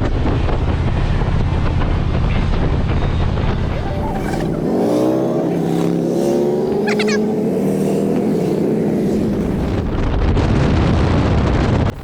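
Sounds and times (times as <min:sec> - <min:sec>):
motorcycle engine slowing: 0:03.4 - 0:10.5.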